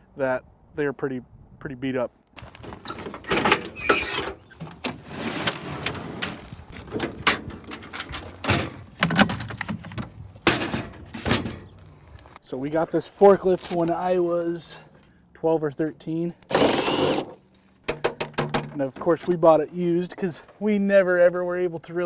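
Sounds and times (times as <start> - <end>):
scraping or rustling: 2.4 - 12.3
tools and parts clanking: 2.4 - 12.4, 16.5 - 19.4.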